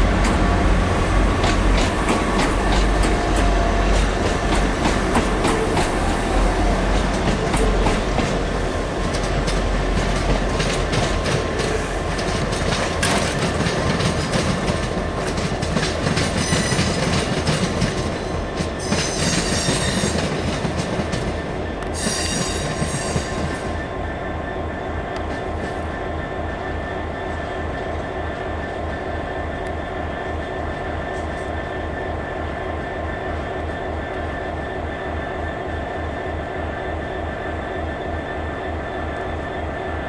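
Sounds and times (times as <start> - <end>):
diesel train engine rumbling: 0.0 - 40.0
high-pitched wheel squeal: 22.0 - 23.3.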